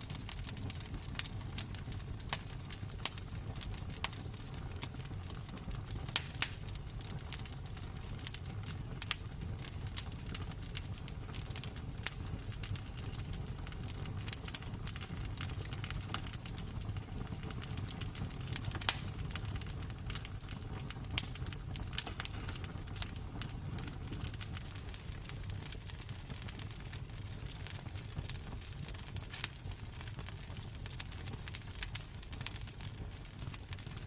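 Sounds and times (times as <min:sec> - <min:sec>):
wood fire crackling: 0:00.0 - 0:34.0
sharp pops and snaps: 0:18.8 - 0:19.4.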